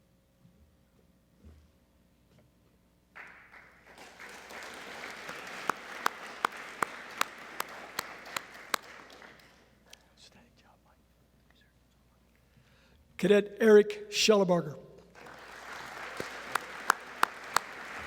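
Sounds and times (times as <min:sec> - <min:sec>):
audience applauding: 0:03.2 - 0:09.7, 0:15.2 - 0:18.0
loud close claps: 0:03.2 - 0:09.7, 0:15.0 - 0:18.0.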